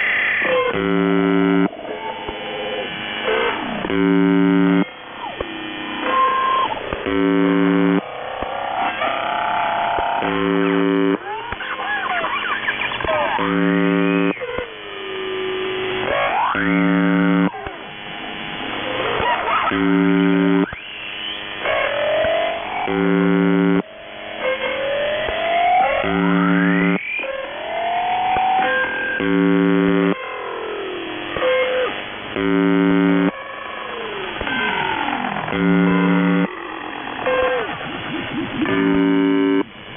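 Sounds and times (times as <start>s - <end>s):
radio noise: 0.0s - 23.9s, 25.9s - 27.3s, 28.3s - 30.2s, 31.2s - 33.4s, 34.3s - 39.9s
harsh radio buzz tone: 0.0s - 39.9s
sliding whistle-like tones: 26.8s - 27.3s.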